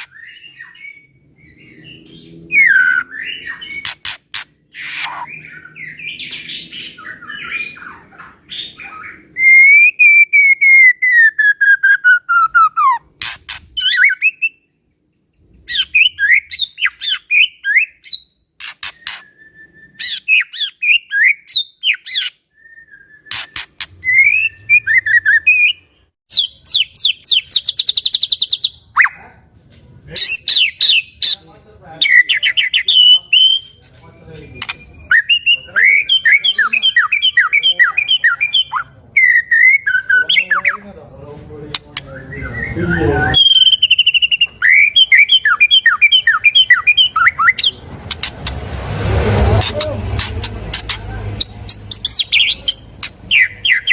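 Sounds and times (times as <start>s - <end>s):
sharp bird clicks: 0.0s - 0.5s, 3.5s - 5.3s, 13.2s - 14.2s, 18.6s - 19.3s, 23.3s - 24.0s, 43.5s - 48.6s
bird singing whistled song: 0.0s - 4.0s, 4.8s - 13.0s, 13.8s - 14.7s, 15.7s - 29.2s, 32.0s - 33.8s, 34.4s - 40.8s, 42.0s - 47.8s, 51.4s - 53.9s
fast bird trill: 0.0s - 14.6s, 23.2s - 29.2s, 42.2s - 48.5s, 49.6s - 53.9s.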